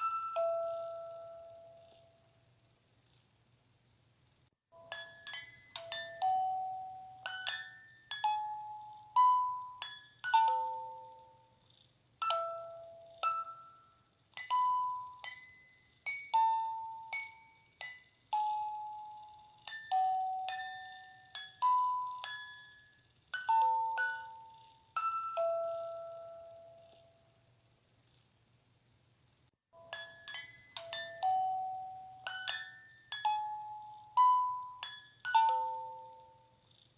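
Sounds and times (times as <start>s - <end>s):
faint low hum: 0.0s - 4.5s, 5.3s - 29.5s.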